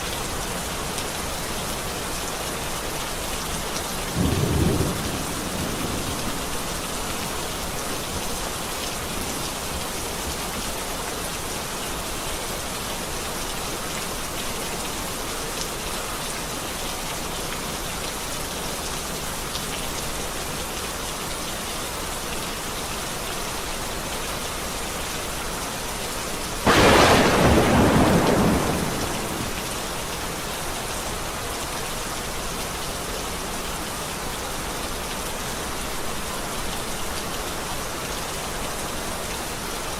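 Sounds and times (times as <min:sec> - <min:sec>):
steady rain falling: 0:00.0 - 0:39.9
thunderclap rumbling: 0:04.2 - 0:06.9, 0:26.7 - 0:30.1.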